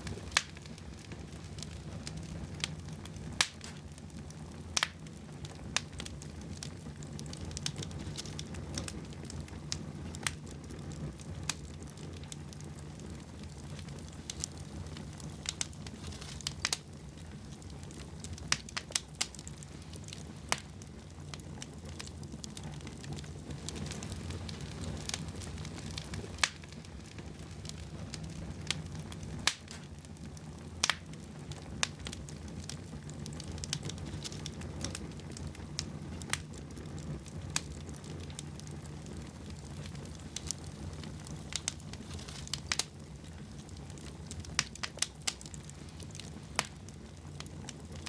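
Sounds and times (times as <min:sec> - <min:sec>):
low rumble of flames: 0:00.0 - 0:48.0
wood fire crackling and popping: 0:00.0 - 0:48.0.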